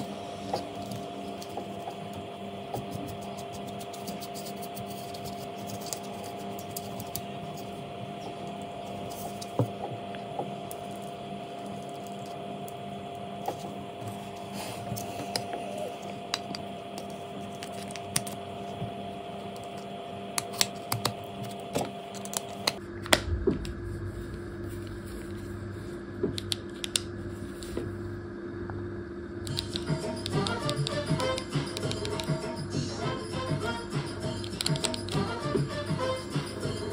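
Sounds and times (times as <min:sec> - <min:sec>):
steady hum: 0:00.0 - 0:36.9
low-pitched pulsing drone: 0:22.8 - 0:25.3.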